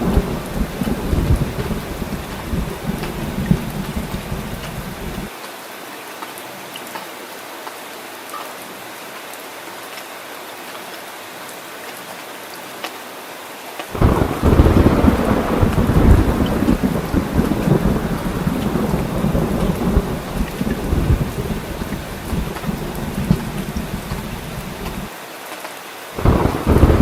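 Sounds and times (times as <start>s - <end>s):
sharp raindrops ticking: 0.0s - 5.3s, 13.8s - 25.1s, 26.2s - 27.0s
thunder rumble: 0.0s - 5.3s, 14.0s - 25.1s, 26.2s - 27.0s
heavy rain falling: 0.0s - 27.0s.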